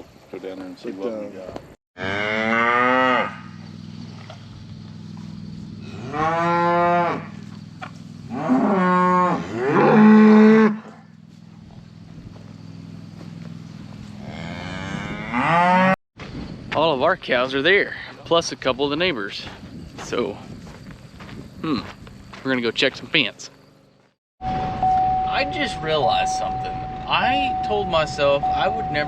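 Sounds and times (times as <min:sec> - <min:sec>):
cattle mooing: 0:02.0 - 0:03.6, 0:05.8 - 0:07.5, 0:08.3 - 0:11.1, 0:14.2 - 0:16.0
steady low hum: 0:03.3 - 0:06.2, 0:10.8 - 0:15.3.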